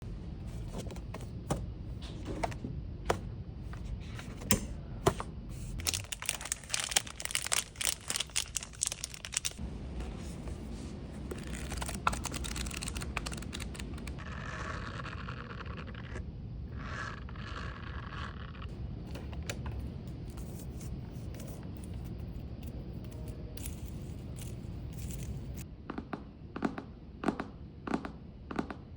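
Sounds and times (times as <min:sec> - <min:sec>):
paper crinkling and tearing: 0:05.8 - 0:09.6, 0:11.2 - 0:16.2.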